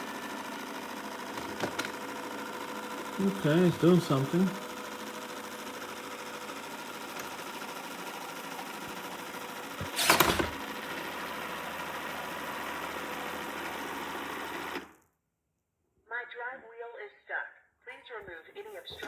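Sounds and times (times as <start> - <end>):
robot vacuum motor hum: 0.0 - 14.9.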